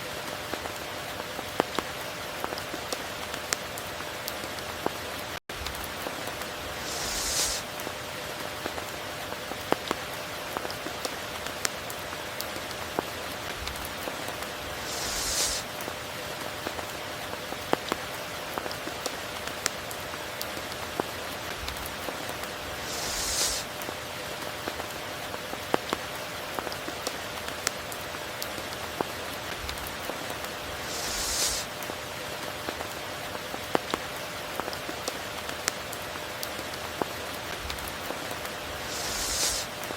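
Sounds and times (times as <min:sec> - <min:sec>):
steady rainfall: 0:00.0 - 0:39.9
brief hiss: 0:06.7 - 0:07.8, 0:14.8 - 0:15.7, 0:22.8 - 0:23.8, 0:30.8 - 0:31.8, 0:38.8 - 0:39.8.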